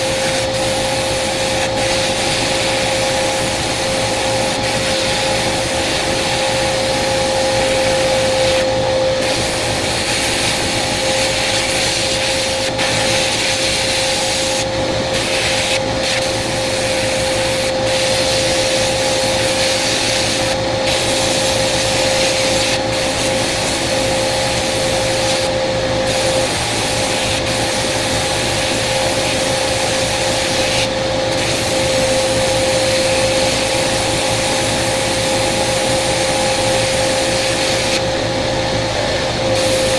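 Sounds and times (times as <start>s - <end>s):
sandblasting gun hissing: 0.0s - 39.9s
steady hum: 0.0s - 39.9s.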